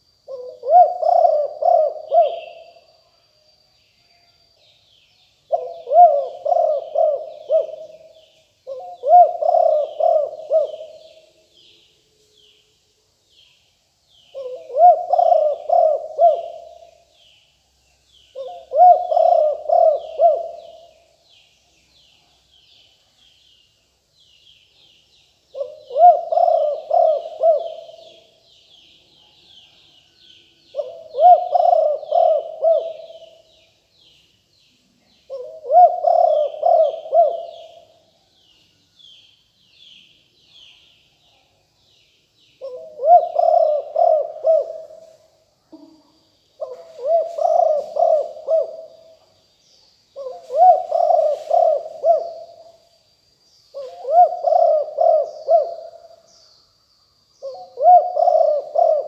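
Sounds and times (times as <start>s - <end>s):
dove cooing: 0.3s - 2.8s, 5.5s - 11.4s, 14.3s - 17.1s, 18.3s - 21.0s, 25.5s - 28.4s, 30.7s - 33.5s, 35.2s - 38.0s, 42.6s - 46.0s, 46.6s - 49.2s, 50.2s - 52.8s, 53.7s - 56.2s, 57.4s - 59.0s
small birds chirping: 4.5s - 59.0s.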